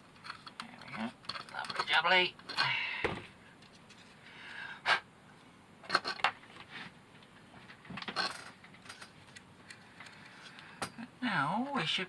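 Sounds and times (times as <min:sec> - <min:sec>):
small hard parts clicking: 0:00.0 - 0:02.8.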